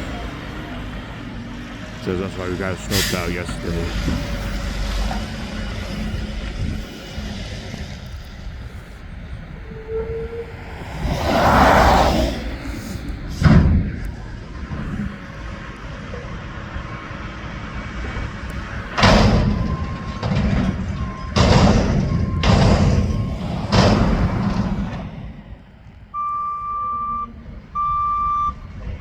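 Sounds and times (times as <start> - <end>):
garbage truck running: 0.0 - 25.9
rushing swell: 4.3 - 14.0
loud bangs and thuds: 13.3 - 14.0, 18.9 - 25.4.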